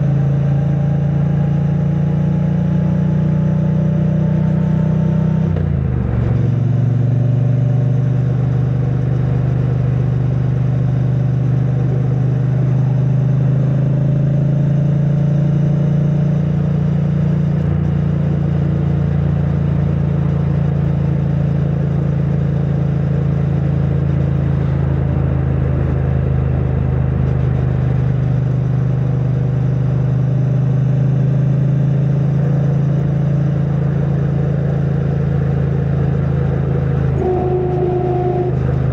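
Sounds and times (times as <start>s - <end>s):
motorcycle engine cruising: 16.5s - 38.9s.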